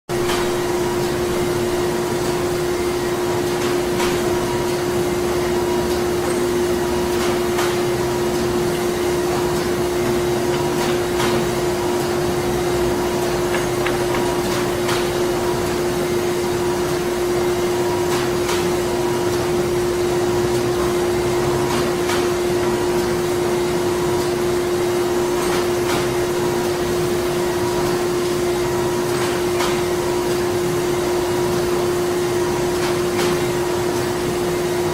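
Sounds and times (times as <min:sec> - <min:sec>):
machinery humming: 0:00.1 - 0:21.6.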